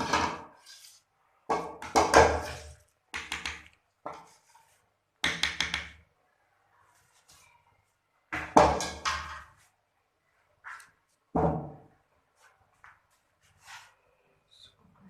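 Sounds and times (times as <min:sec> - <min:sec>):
kitchen utensils clattering: 0:00.0 - 0:00.6.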